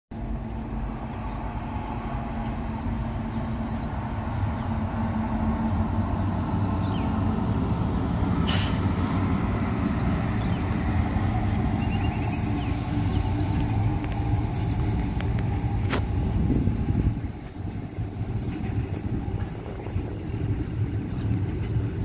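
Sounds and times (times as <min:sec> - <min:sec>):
train rumbling on rails: 0:00.1 - 0:22.0
sharp hiss: 0:08.4 - 0:08.9.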